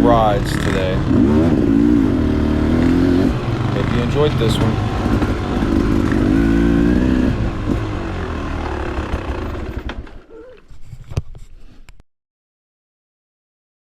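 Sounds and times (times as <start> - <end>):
two-stroke dirt bike engine: 0.0 - 10.3.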